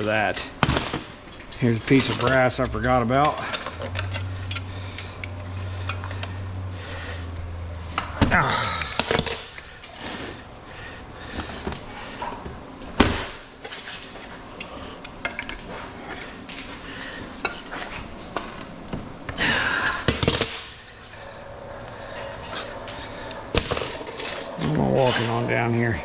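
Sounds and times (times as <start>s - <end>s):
scrap metal clinking and clanking: 0.0s - 6.4s, 22.2s - 25.8s
metal scraping clatter: 22.3s - 26.0s.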